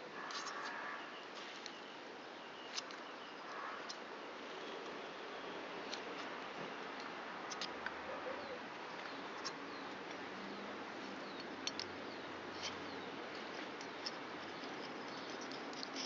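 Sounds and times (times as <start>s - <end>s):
steady low hiss: 0.0s - 16.0s
small engine parts clicking: 11.3s - 11.9s, 13.8s - 16.0s.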